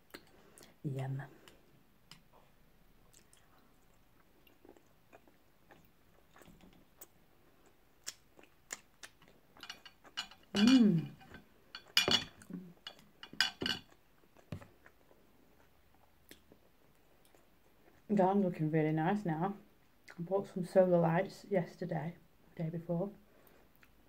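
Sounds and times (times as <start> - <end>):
chewing mouth sounds: 3.0 - 9.4
person humming: 10.6 - 11.2.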